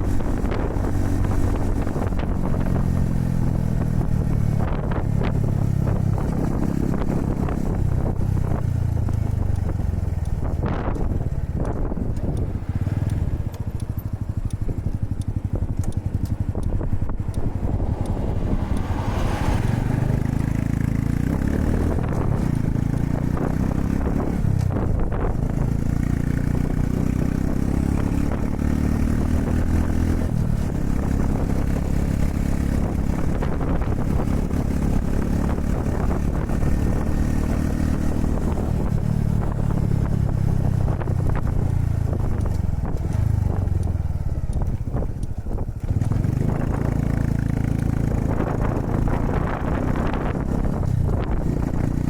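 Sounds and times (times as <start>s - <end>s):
motorcycle engine revving: 0.0s - 52.0s
wind buffeting microphone: 0.0s - 52.0s.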